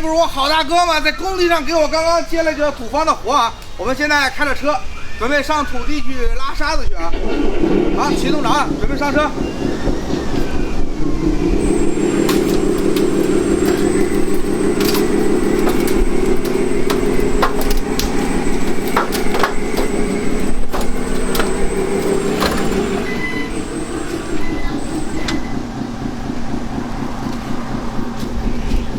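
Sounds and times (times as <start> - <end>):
truck engine running: 7.1 - 28.9
sharp clicks and knocks: 11.2 - 28.9.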